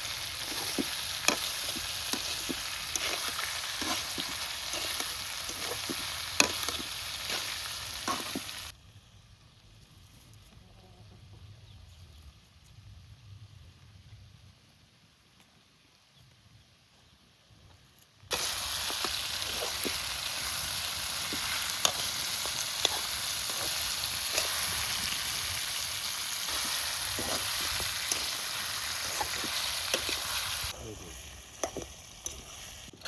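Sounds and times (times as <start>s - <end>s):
food sizzling in hot oil: 0.0s - 8.8s, 18.3s - 33.0s
oil crackling and popping: 0.0s - 8.8s, 18.3s - 33.0s.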